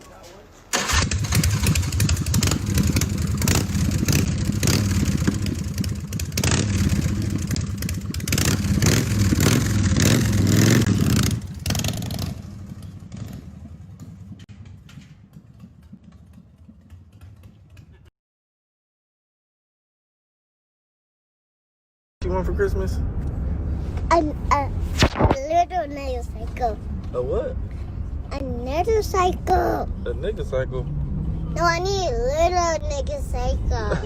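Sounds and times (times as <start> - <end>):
motorcycle engine revving: 0.8 - 18.1, 30.4 - 31.8.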